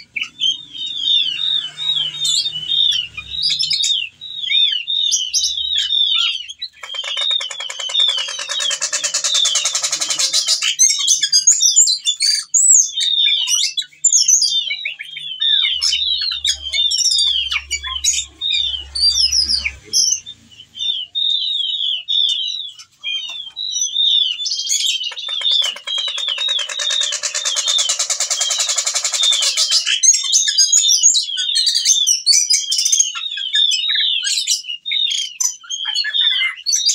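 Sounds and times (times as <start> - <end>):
thrush singing: 0.0 - 11.0, 15.1 - 30.1.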